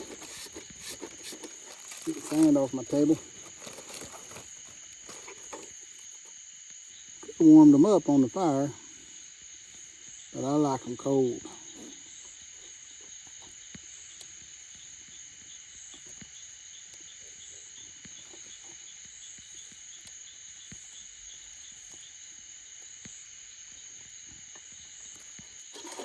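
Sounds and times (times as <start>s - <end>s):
insect high-pitched shrill: 0.0s - 22.2s, 23.2s - 26.0s
pulsing insect trill: 0.0s - 26.0s.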